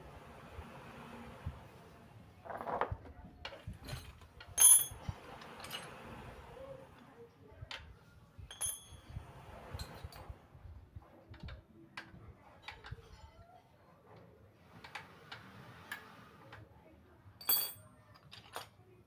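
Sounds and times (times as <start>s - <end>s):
ringing metal clink: 4.6s - 5.0s, 8.5s - 9.1s, 17.4s - 17.9s.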